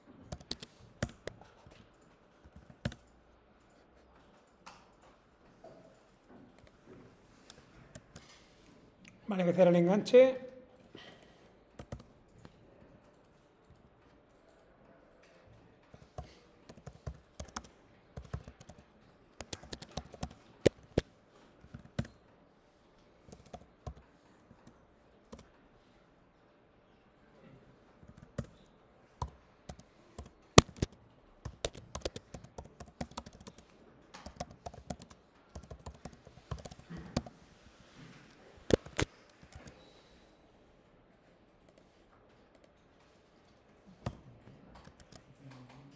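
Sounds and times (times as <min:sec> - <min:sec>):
typing on a keyboard: 0:00.1 - 0:05.2, 0:11.8 - 0:22.2, 0:23.2 - 0:25.6, 0:28.0 - 0:37.4, 0:38.7 - 0:39.8, 0:41.6 - 0:45.9.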